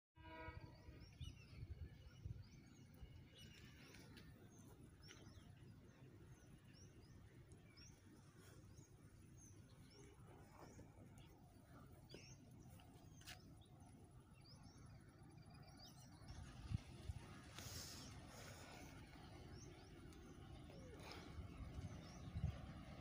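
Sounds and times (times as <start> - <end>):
low rumble: 14.7 - 23.0.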